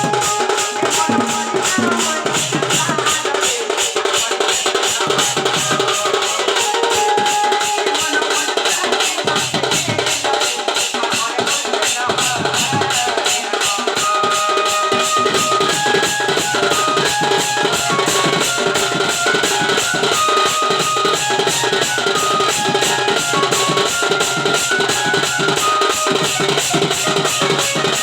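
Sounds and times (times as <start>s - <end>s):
folk melody of held notes: 0.0s - 3.0s, 14.1s - 28.0s
fast drum beat: 0.0s - 28.0s.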